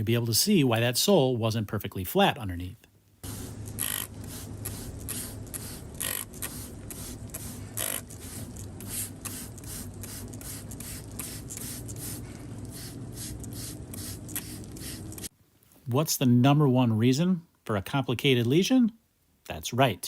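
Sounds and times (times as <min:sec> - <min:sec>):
steady low hum: 0:03.2 - 0:15.3
hoof knife scraping claw: 0:03.7 - 0:06.7, 0:07.3 - 0:08.2.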